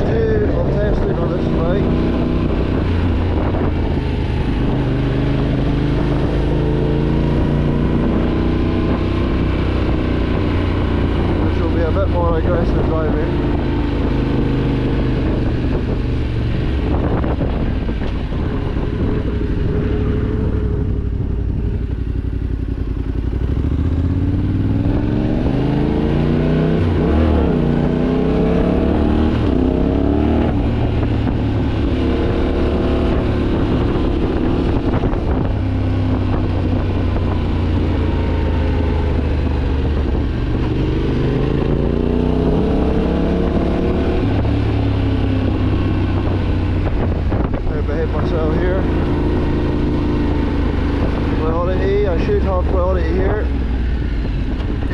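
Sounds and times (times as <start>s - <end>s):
motorcycle engine accelerating hard: 0.0s - 54.9s.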